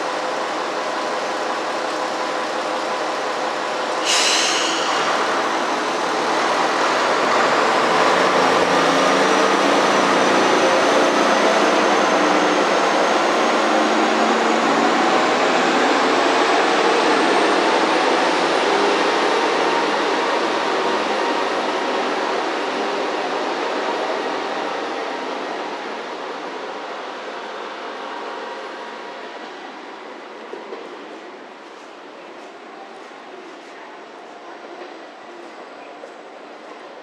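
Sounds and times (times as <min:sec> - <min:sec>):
train running noise: 0:00.0 - 0:37.0
brief hiss: 0:04.0 - 0:05.1.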